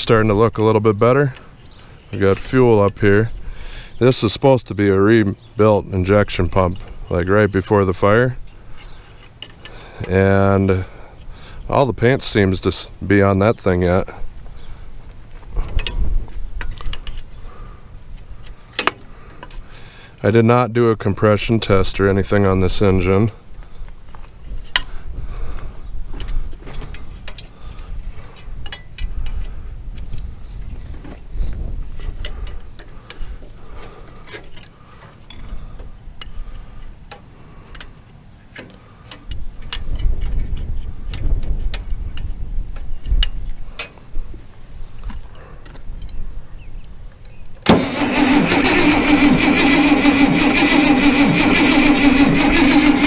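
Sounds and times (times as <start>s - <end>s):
diesel engine cranking on starter: 47.6s - 53.0s.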